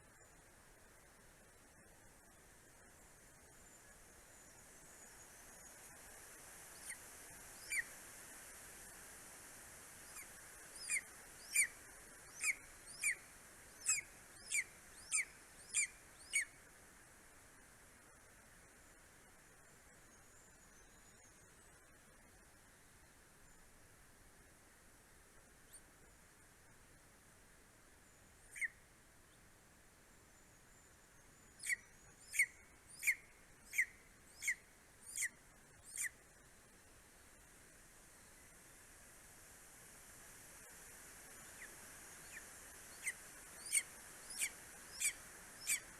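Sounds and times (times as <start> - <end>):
faint background hiss: 0.0 - 45.9
eagle calling: 10.8 - 11.7, 13.8 - 16.5, 28.5 - 28.7, 31.6 - 35.3, 35.9 - 36.1, 43.0 - 45.9.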